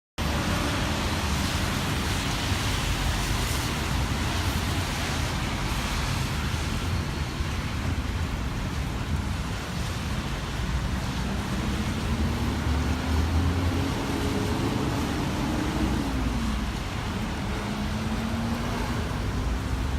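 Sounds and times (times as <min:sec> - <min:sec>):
road traffic: 0:00.2 - 0:19.9.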